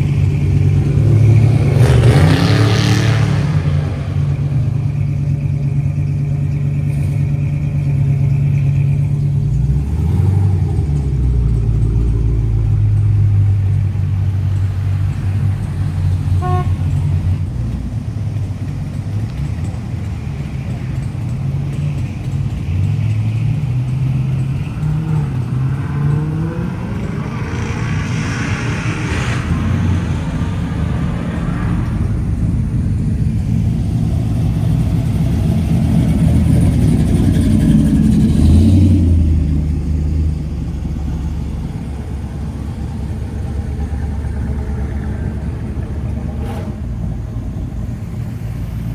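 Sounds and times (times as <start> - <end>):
cars revving driving past: 0.0 - 48.9
car horn toot: 16.4 - 17.2.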